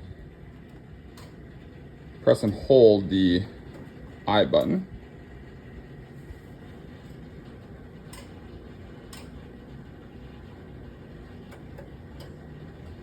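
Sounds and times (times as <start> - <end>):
low equipment hum: 0.0 - 13.0.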